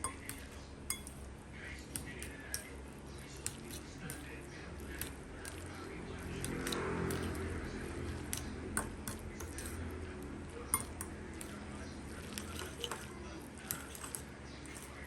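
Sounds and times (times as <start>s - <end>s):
metal utensils clinking: 0.0s - 1.3s, 10.6s - 15.0s.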